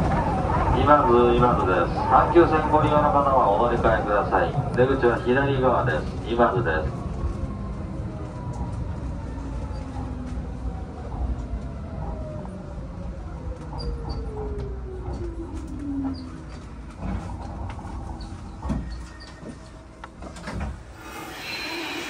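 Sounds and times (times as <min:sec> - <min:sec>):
train running rumble: 0:13.3 - 0:21.5
air hiss: 0:21.0 - 0:22.0.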